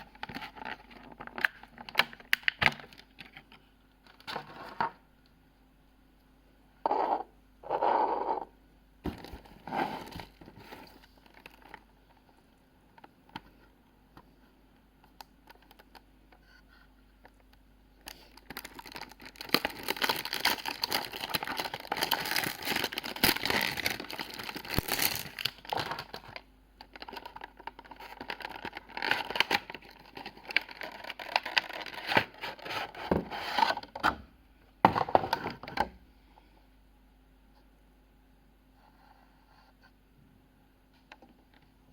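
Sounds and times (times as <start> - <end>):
packaging crinkling and rustling: 0.0 - 5.0, 9.1 - 12.3, 18.1 - 34.0.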